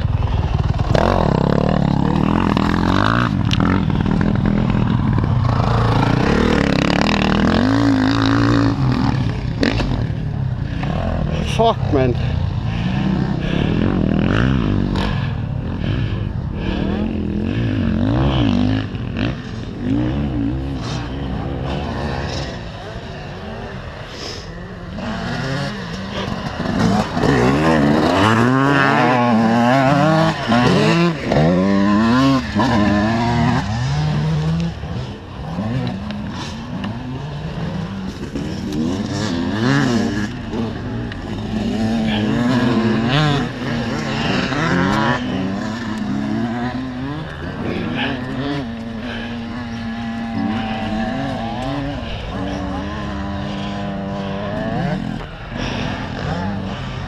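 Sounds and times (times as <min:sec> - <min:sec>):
motocross bike engines revving: 0:00.0 - 0:57.0.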